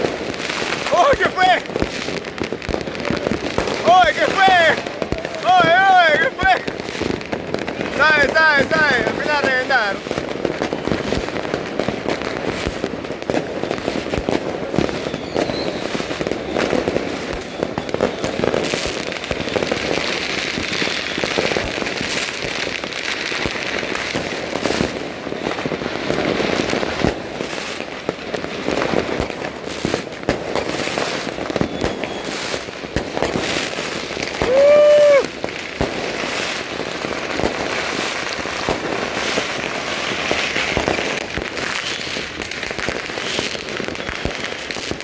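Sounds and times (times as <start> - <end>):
fireworks and firecrackers banging: 0.0 - 45.0.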